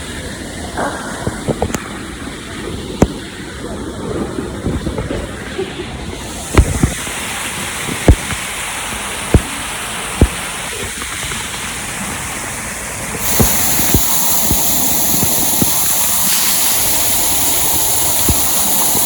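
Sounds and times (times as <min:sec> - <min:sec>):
waterfall rushing: 0:05.3 - 0:19.0.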